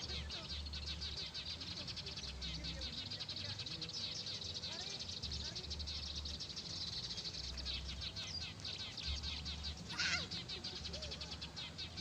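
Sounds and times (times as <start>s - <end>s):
small birds chirping: 0.0s - 12.0s
loud sweeping bird call: 7.3s - 12.0s.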